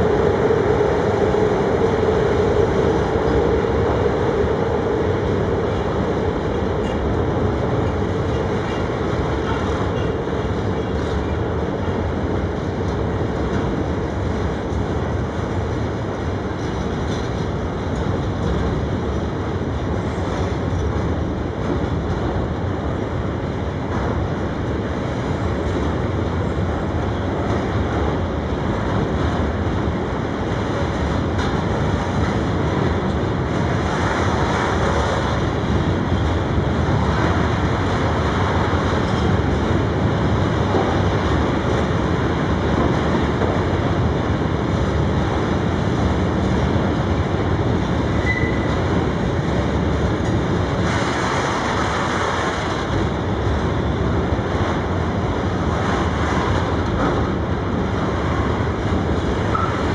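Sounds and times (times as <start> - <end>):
steady whine: 0.0 - 10.2
clickety-clack at rail joints: 0.0 - 59.9
freight train rumbling past: 0.0 - 59.9.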